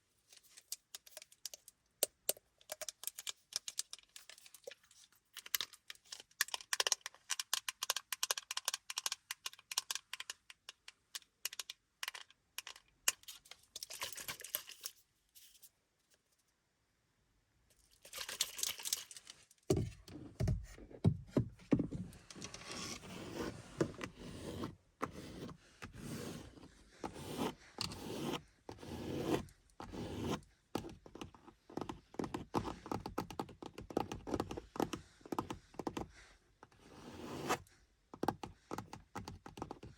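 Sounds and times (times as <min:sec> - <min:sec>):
fingernail scratching on car: 0:22.8 - 0:30.4, 0:36.8 - 0:37.6.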